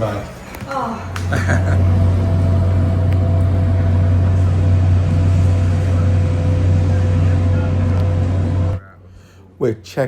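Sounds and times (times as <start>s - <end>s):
low machine hum: 1.2s - 9.0s.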